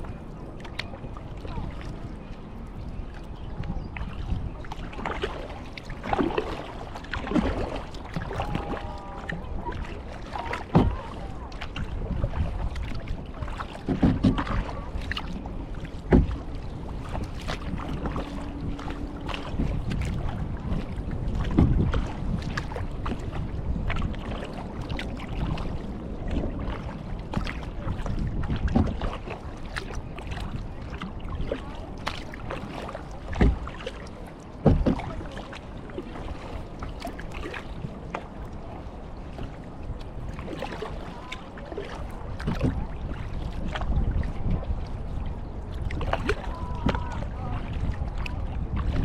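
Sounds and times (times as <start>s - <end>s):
paddle splashing in water: 0.0s - 49.0s
sharp thumps or splashes: 16.1s - 16.4s, 34.6s - 35.2s.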